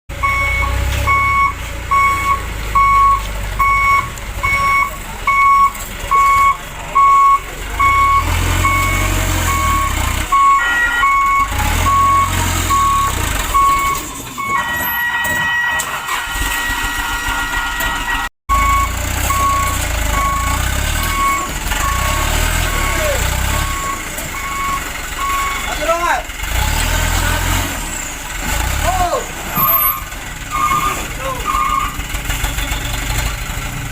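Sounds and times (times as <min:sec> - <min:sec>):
truck reversing alarm beeping: 0:00.1 - 0:33.3
diesel engine running: 0:00.1 - 0:33.9.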